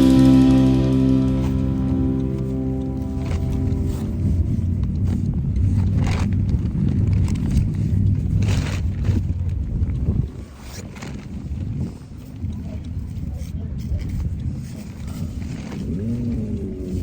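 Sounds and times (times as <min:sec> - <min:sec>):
wind buffeting microphone: 0:00.0 - 0:17.0
scraping rustles: 0:03.0 - 0:17.0.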